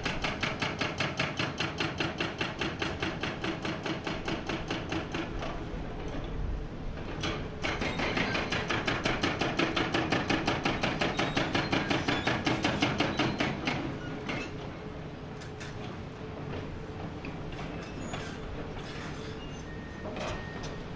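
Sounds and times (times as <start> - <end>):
hydraulic breaker hammering rock: 0.0 - 5.5, 7.2 - 14.5.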